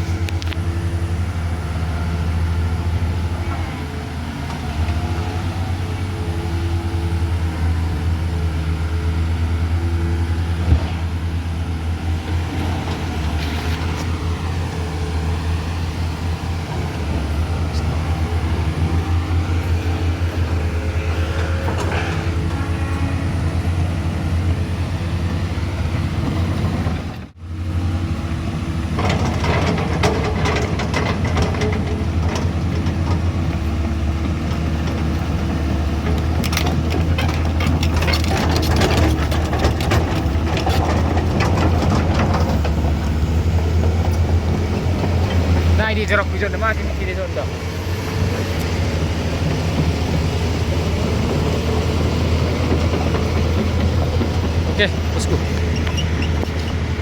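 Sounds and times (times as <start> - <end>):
vehicle engine running: 0.0 - 57.0
rattling and clicking: 29.0 - 47.0, 49.4 - 57.0.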